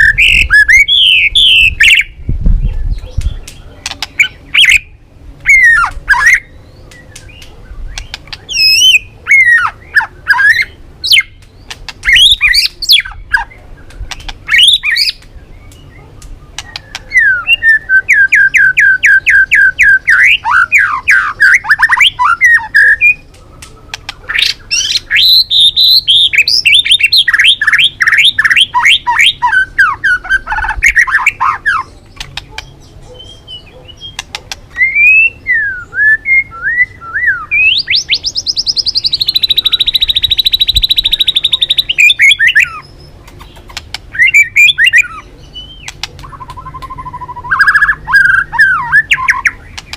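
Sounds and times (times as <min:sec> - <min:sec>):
bird singing fast phrases: 0:00.0 - 0:49.9
bird high trill: 0:24.3 - 0:42.9, 0:44.1 - 0:49.7.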